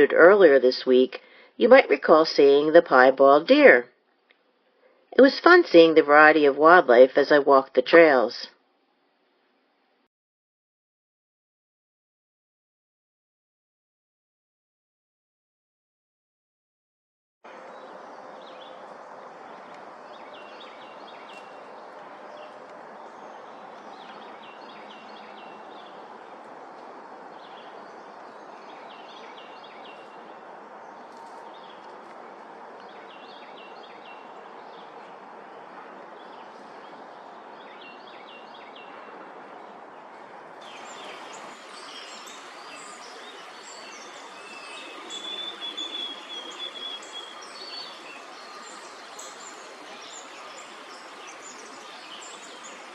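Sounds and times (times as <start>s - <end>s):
birds singing: 17.6s - 26.3s, 27.3s - 32.0s, 32.8s - 35.2s, 36.2s - 39.1s, 40.6s - 52.9s.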